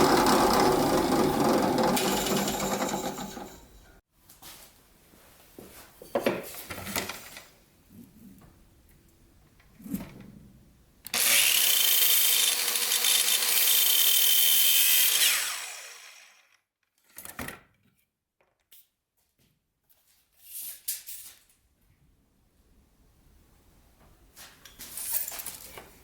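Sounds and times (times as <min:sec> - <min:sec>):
electric power tool on wood: 0:00.0 - 0:03.5, 0:11.1 - 0:16.6.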